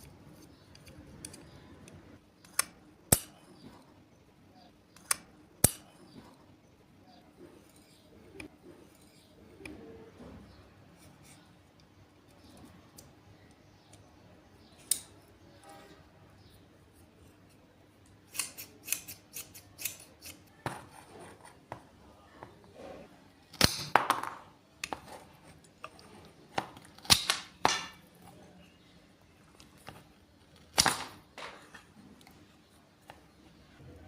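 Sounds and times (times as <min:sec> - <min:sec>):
scissors snipping: 0:18.3 - 0:20.5.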